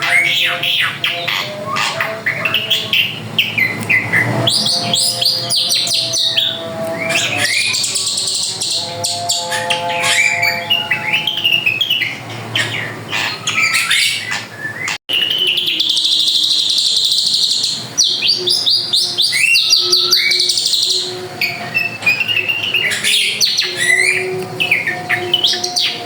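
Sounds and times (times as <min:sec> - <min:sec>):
bird singing rapid chirps and trills: 0:00.0 - 0:26.0.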